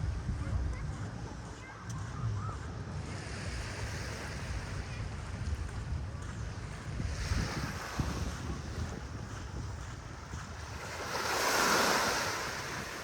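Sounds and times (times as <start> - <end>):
wind buffeting microphone: 0.0 - 13.0
sea surf washing onto sand: 7.1 - 13.0.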